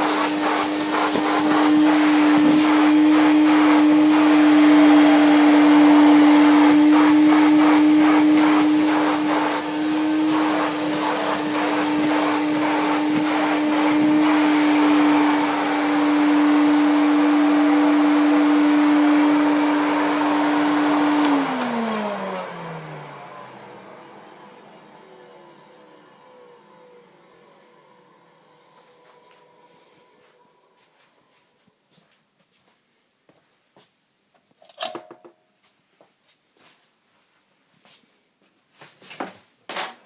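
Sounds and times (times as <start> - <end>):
vacuum cleaner motor whine: 0.0 - 31.8.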